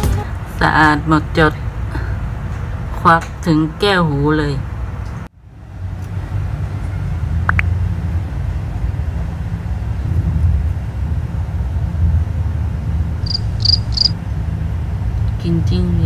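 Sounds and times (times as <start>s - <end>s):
steady low rumble: 0.0s - 16.0s
crickets chirping: 13.2s - 14.2s.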